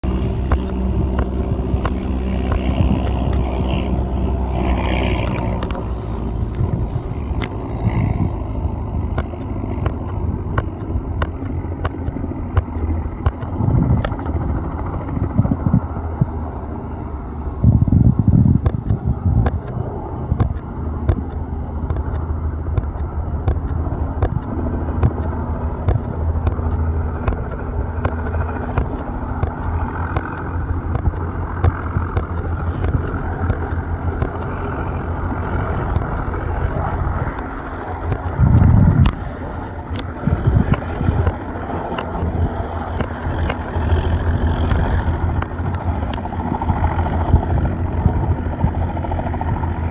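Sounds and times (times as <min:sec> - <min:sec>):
helicopter rotor thrum: 0:00.0 - 0:49.9
wind buffeting microphone: 0:00.0 - 0:49.9.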